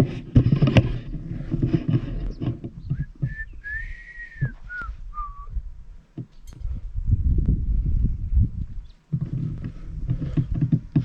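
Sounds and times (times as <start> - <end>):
person whistling: 2.9 - 5.6.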